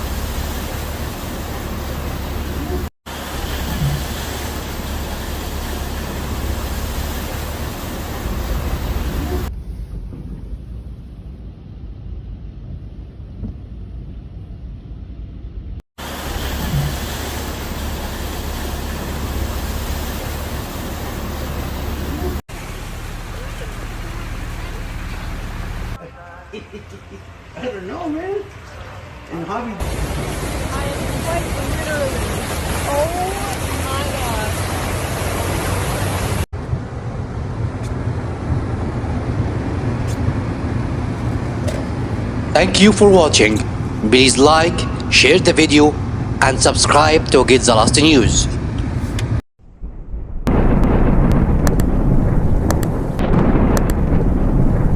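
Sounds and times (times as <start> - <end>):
heavy rainstorm rushing: 0.0 - 11.0, 16.0 - 26.0, 27.2 - 46.4, 49.8 - 54.9
storm hiss: 0.0 - 13.4, 16.0 - 26.0, 49.6 - 54.9
deep rumble: 0.0 - 26.0, 48.5 - 54.9.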